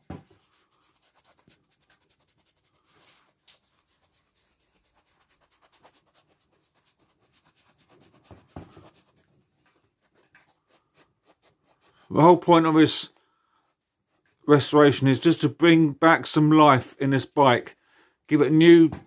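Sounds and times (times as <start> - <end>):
cloth rubbing a seat: 0.0 - 9.3.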